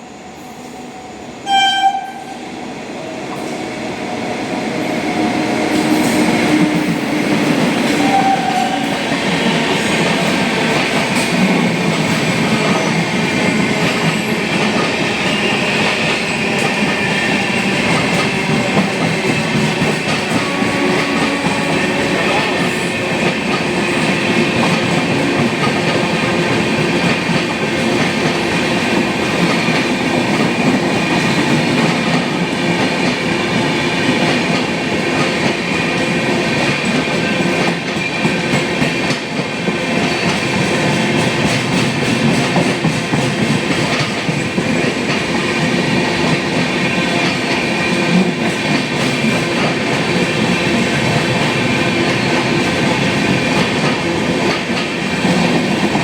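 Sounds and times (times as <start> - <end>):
train wheels clattering over rail joints: 34.1 - 56.0.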